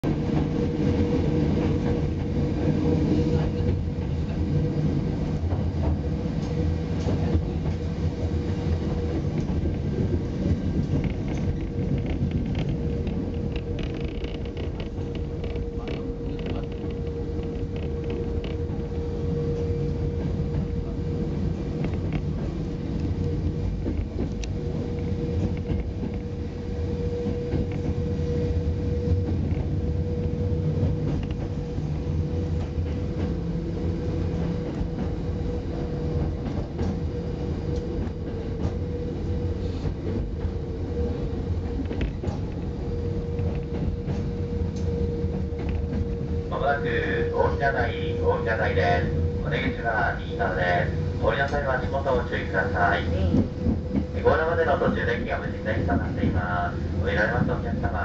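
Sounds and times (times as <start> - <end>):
train wheels rumbling: 0.0 - 58.0
constant hum: 0.3 - 58.0
faint clicks from rails: 5.3 - 26.4, 27.2 - 28.1, 29.2 - 31.9, 34.2 - 39.0, 39.8 - 47.8, 51.3 - 56.5.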